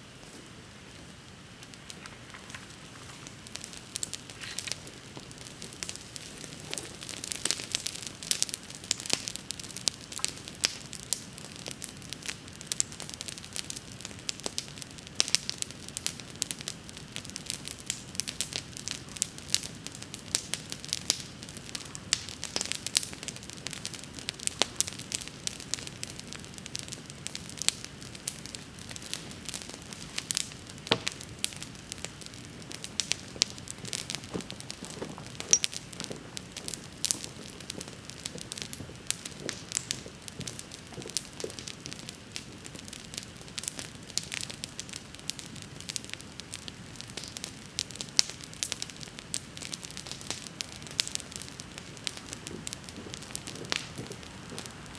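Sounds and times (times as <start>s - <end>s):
campfire crackling and popping: 0.0s - 54.9s
hiss of flames: 0.1s - 12.4s, 15.2s - 54.9s.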